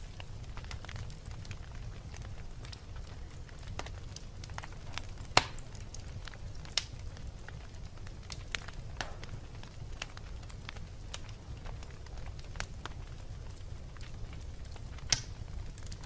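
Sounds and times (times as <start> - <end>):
burning wood popping: 0.0 - 16.0
fire burning and crackling: 0.0 - 16.0.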